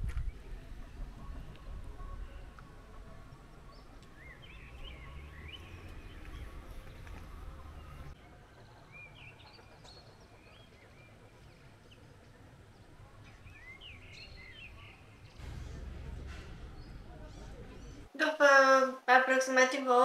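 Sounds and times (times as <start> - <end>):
faint outdoor background hiss: 0.0 - 20.0
small birds chirping: 2.0 - 15.5
low rumble: 11.2 - 18.1.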